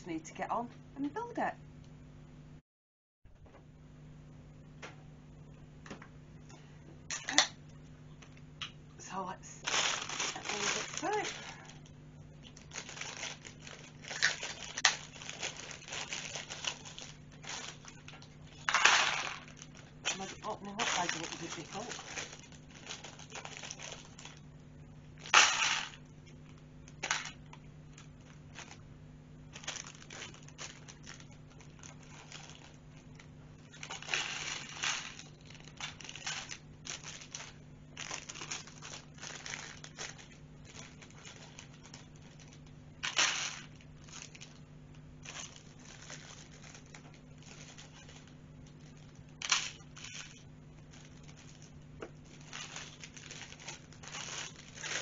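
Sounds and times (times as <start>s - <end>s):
plastic bags crinkling: 9.6s - 24.4s, 25.2s - 28.8s, 29.5s - 55.0s
plastic bags tearing: 9.6s - 24.4s, 25.2s - 28.8s, 29.5s - 44.6s, 45.2s - 55.0s.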